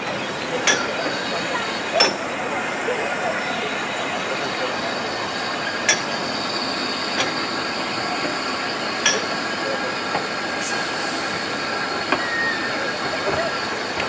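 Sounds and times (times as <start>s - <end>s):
train rumble: 0.0s - 14.0s
high wheel squeal: 10.5s - 14.0s.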